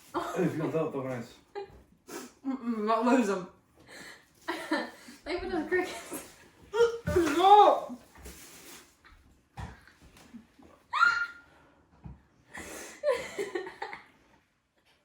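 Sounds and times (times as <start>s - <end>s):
loud high cry: 10.9s - 11.4s.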